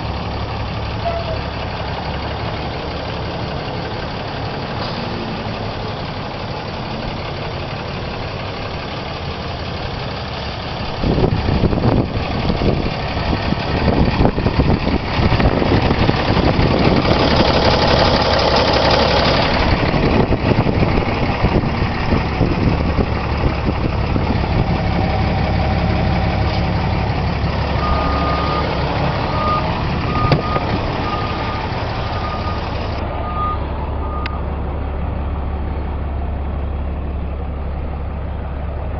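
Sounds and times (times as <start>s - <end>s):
diesel engine idling: 0.0s - 38.9s
short electronic beeps: 27.8s - 34.4s.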